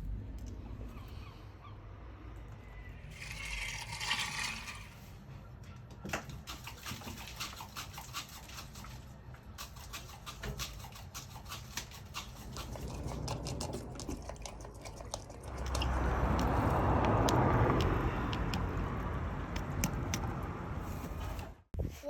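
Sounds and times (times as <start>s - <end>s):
gull beak clicking: 9.6s - 18.9s.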